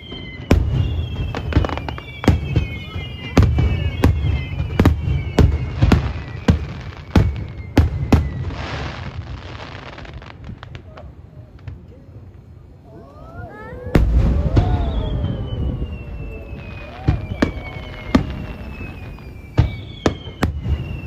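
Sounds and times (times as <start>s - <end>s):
falling whistling tones: 0.0s - 8.7s, 12.9s - 21.0s
firework crackling hiss: 13.4s - 21.0s
firework shells bursting: 13.9s - 21.0s.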